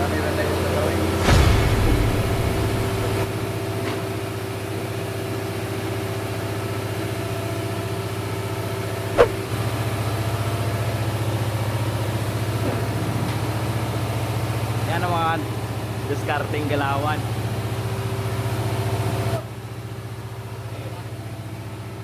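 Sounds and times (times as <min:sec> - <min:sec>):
sharp knock: 0:09.2 - 0:09.4.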